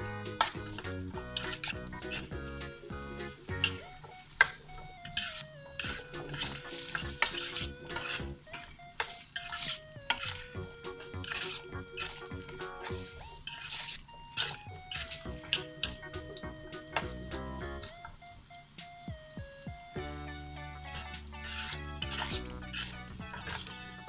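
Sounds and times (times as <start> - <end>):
spatula scraping pan: 4.5 - 15.7, 20.9 - 24.0
vegetables sizzling in oil: 11.2 - 16.0.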